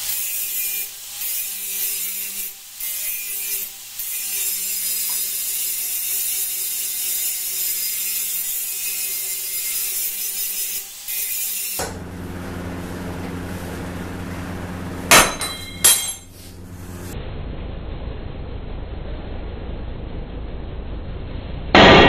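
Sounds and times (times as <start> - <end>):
power grinder grinding steel: 0.0 - 13.4.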